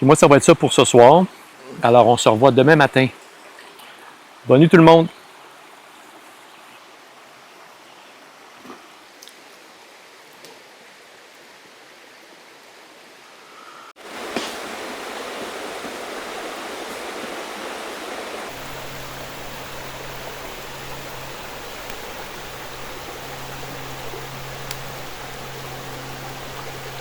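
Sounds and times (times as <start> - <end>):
flowing water rushing: 14.0 - 27.0
low steady hum: 18.5 - 27.0.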